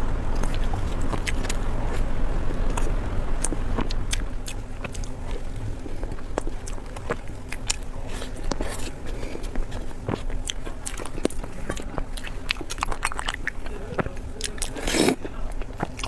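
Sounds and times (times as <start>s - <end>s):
low steady hum: 0.0s - 16.0s
person chewing food: 0.3s - 16.0s
wet mouth clicks and smacks: 6.1s - 16.0s.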